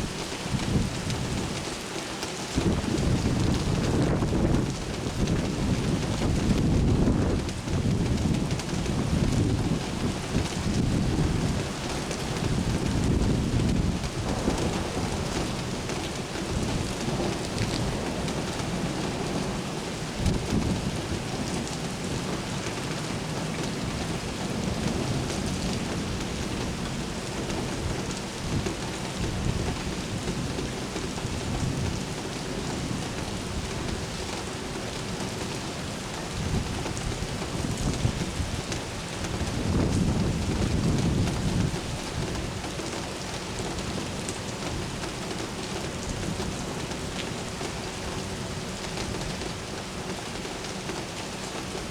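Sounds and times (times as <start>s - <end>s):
steady rain: 0.0s - 51.9s
rolling thunder: 2.6s - 22.3s, 36.3s - 42.7s.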